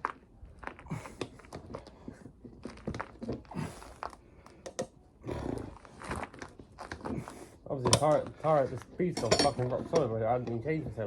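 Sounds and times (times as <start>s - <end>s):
tools knocking and clicking: 9.2s - 10.6s.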